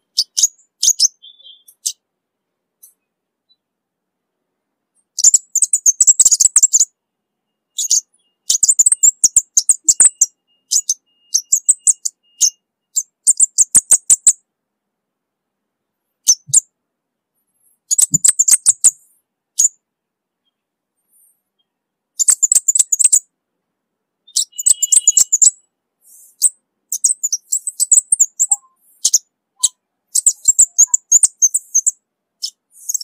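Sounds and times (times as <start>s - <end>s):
bird ticking calls: 0.0s - 2.0s, 5.0s - 6.9s, 7.7s - 14.4s, 16.2s - 16.7s, 17.9s - 19.8s, 21.6s - 23.2s, 24.3s - 33.0s.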